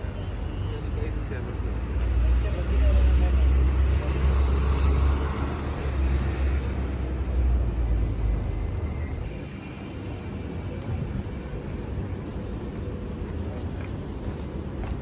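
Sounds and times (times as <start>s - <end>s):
street traffic haze: 0.0s - 15.0s
vehicle rumbling past: 2.1s - 9.2s.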